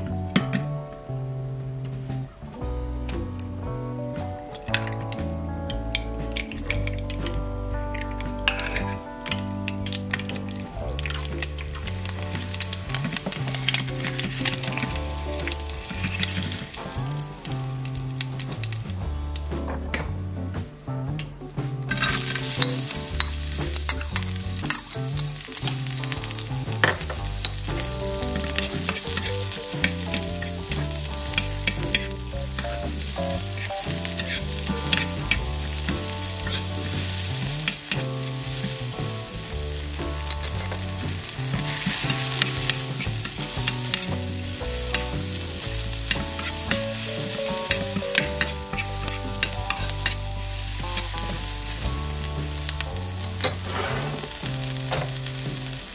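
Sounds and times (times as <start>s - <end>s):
food sizzling in hot oil: 9.9s - 19.0s, 22.0s - 55.9s
spatula scraping a pan: 40.2s - 51.9s.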